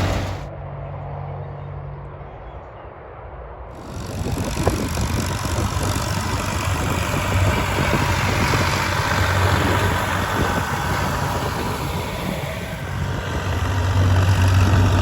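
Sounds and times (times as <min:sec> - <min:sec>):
tractor diesel engine running: 0:00.0 - 0:00.5, 0:03.8 - 0:15.0.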